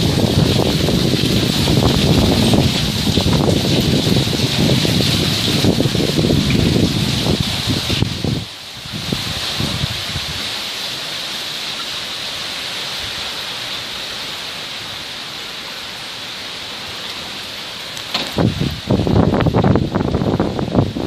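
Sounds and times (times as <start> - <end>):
wind buffeting microphone: 0.0 - 10.6, 18.1 - 21.0
steady rain falling: 0.0 - 21.0.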